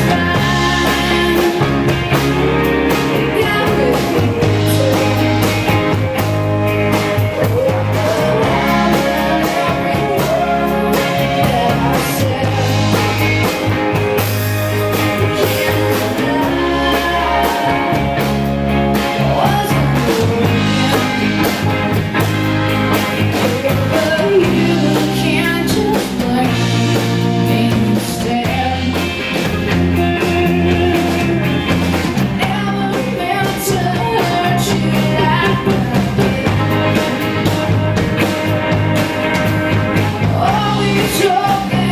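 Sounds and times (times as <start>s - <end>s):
person singing: 0.0s - 14.0s, 14.9s - 22.2s, 23.0s - 41.9s
live rock band: 0.0s - 41.9s.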